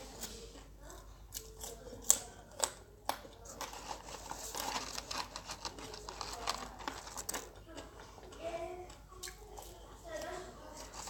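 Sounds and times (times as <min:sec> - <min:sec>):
person chewing fries: 0:00.0 - 0:10.0
paper carton rustling: 0:03.6 - 0:07.4.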